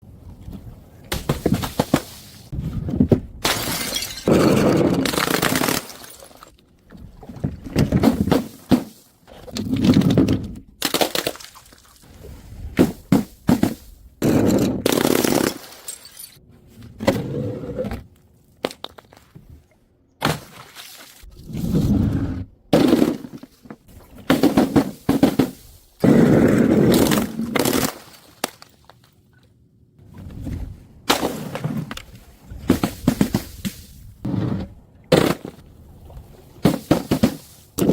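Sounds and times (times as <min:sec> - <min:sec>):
glass bottles shattering on stairs: 0:03.4 - 0:06.5, 0:15.2 - 0:16.4.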